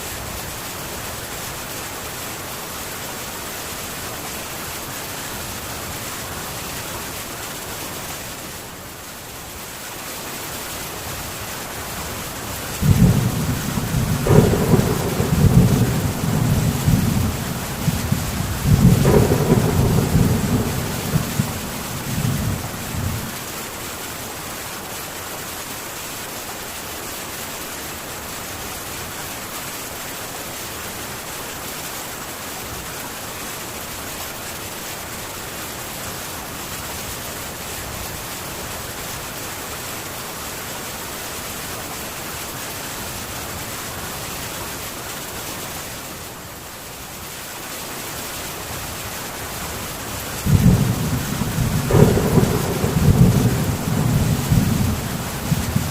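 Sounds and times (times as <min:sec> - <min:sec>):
heavy rain on a tin roof: 0:00.0 - 0:55.9
thunder rumble: 0:12.8 - 0:23.5, 0:50.4 - 0:55.9.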